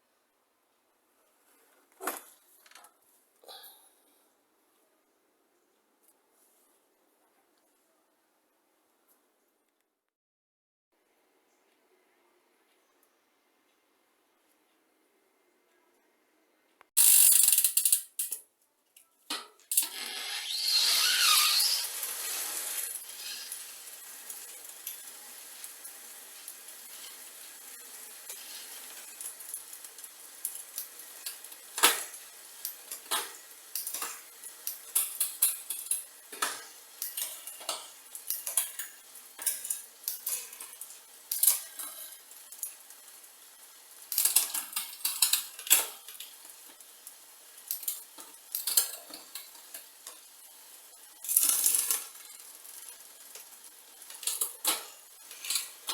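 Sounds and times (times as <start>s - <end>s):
metal bicycle parts clinking: 17.0s - 18.4s.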